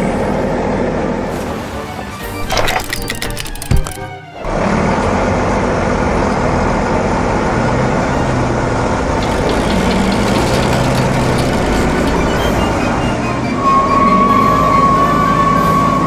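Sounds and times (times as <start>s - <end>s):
heavy vehicle engine droning: 4.5s - 16.0s.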